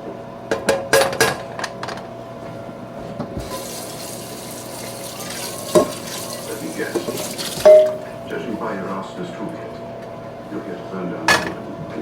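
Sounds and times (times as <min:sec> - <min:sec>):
kitchenware clinking: 0:03.4 - 0:08.3
tap water running into sink: 0:03.4 - 0:08.3.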